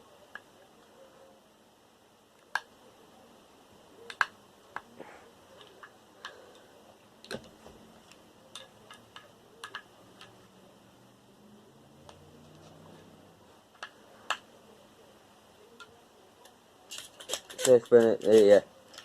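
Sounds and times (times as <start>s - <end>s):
screwdriver and metal parts clicking: 7.2s - 10.4s, 15.8s - 19.0s.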